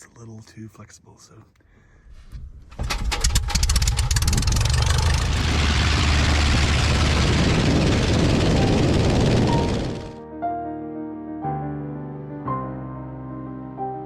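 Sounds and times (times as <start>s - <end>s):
light aircraft piston engine: 3.4s - 10.2s.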